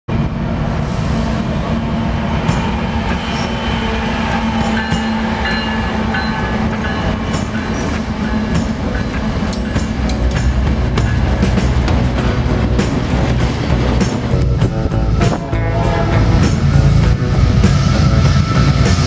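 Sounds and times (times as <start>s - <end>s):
diesel locomotive engine drone: 0.1s - 19.0s
high-pitched wheel squeals: 2.2s - 9.9s
wheels clicking over rails: 2.4s - 15.4s.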